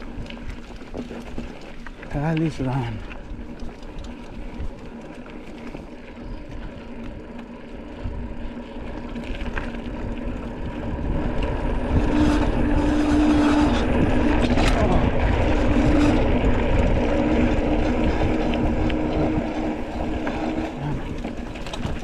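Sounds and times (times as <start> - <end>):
bike tyres rumbling on dirt: 0.0 - 22.0
steady hum: 2.9 - 22.0
wind on microphone: 9.9 - 22.0.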